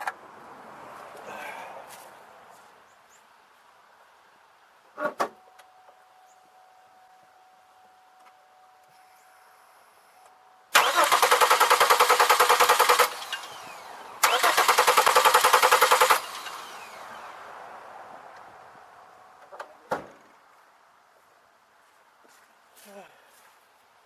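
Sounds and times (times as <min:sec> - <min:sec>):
car engine cranking: 0:10.7 - 0:17.3.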